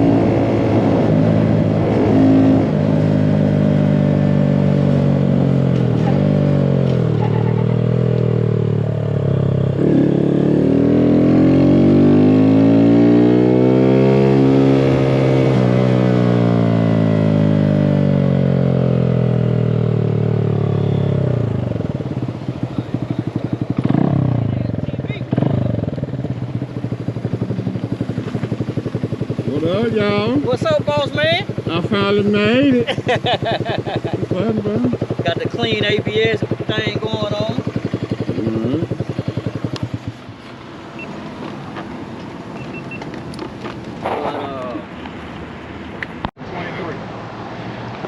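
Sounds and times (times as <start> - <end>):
small motorcycle engine: 1.2 - 41.2.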